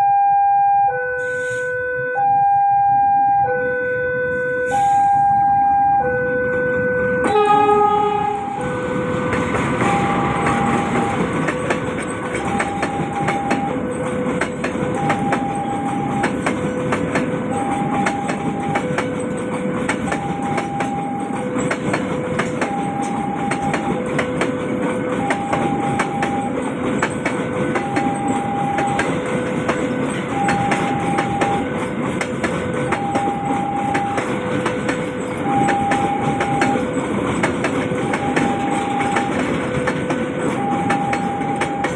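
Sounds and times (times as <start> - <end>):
two-tone crossing alarm: 0.0 - 41.9
train horn blast: 6.1 - 9.2
train wheels clicking over rail joints: 8.0 - 41.9.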